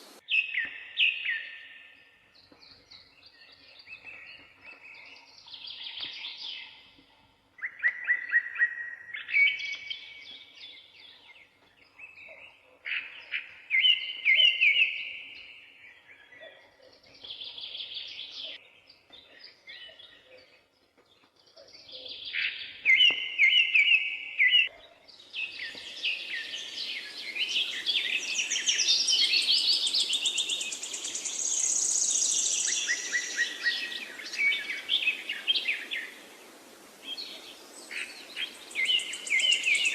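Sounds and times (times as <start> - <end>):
steady hiss: 0.0 - 0.2, 25.8 - 39.9
birds singing: 0.0 - 39.9.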